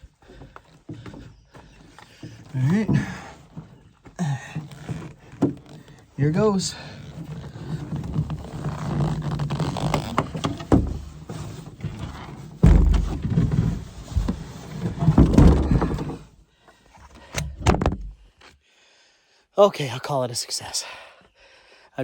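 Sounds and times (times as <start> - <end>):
canoe rubbing and thumping: 0.0 - 16.3, 17.0 - 18.3.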